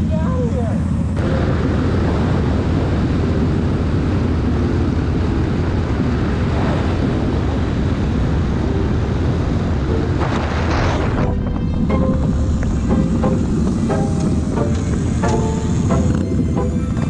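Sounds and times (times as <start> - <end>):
motorcycle engine running: 0.0 - 17.0
wind noise: 0.0 - 17.0.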